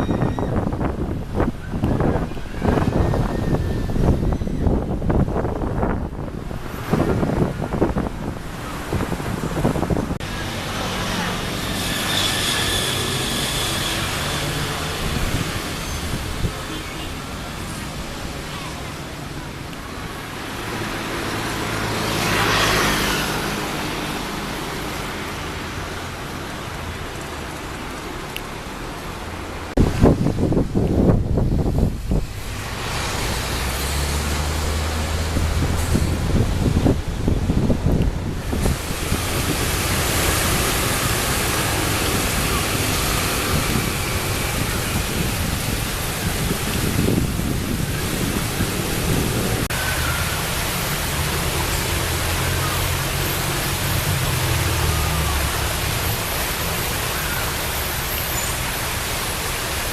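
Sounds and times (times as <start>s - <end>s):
road traffic: 0.0s - 59.9s
vehicle passing by: 20.3s - 27.6s, 32.2s - 57.7s.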